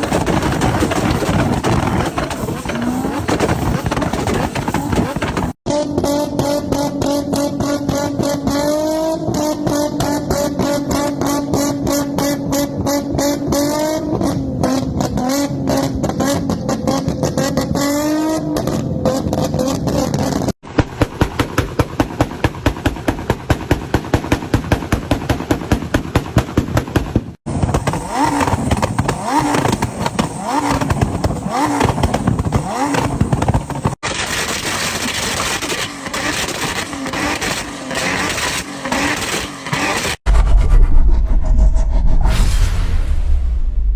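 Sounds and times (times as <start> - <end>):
exhaust pops and bangs: 0.0 - 13.6, 18.5 - 40.2
car engine revving: 0.0 - 20.5, 36.0 - 42.4.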